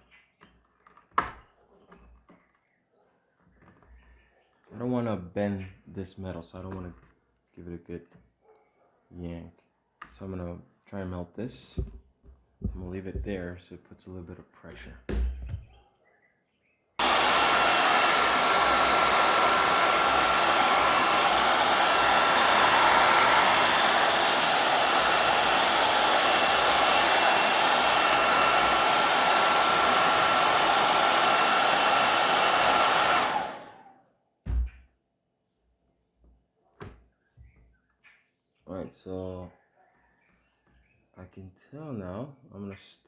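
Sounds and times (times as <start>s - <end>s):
hair dryer blowing: 17.0s - 33.9s.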